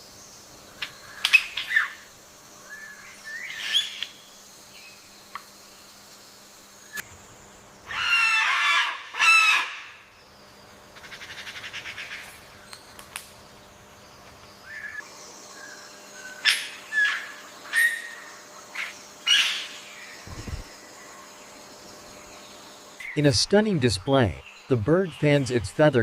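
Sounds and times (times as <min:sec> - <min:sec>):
harsh bird calls: 0:14.6 - 0:26.0.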